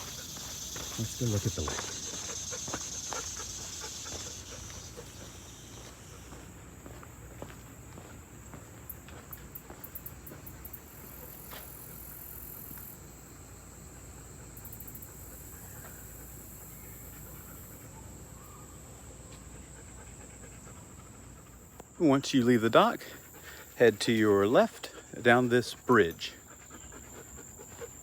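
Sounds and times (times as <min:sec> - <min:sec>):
high-pitched insect chirps: 0:00.0 - 0:06.4
soft footsteps: 0:00.0 - 0:10.6
high insect buzz: 0:00.0 - 0:17.8.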